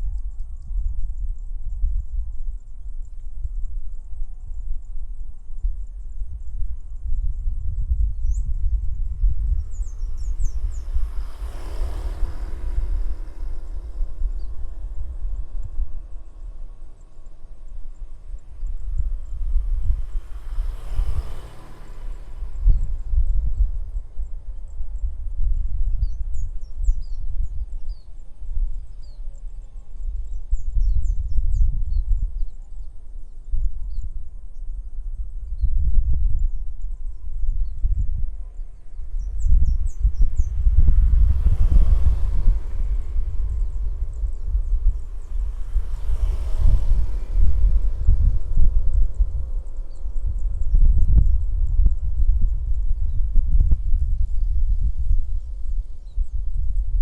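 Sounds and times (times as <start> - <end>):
wind buffeting microphone: 0.0 - 57.0
small birds chirping: 7.2 - 24.2
rushing sound: 9.4 - 15.7, 17.9 - 24.0.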